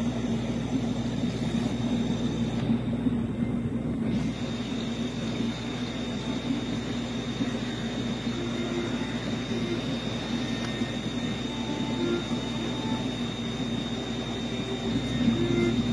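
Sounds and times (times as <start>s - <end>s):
aquarium pumps humming: 0.0s - 15.9s
faint high whine: 0.0s - 15.9s.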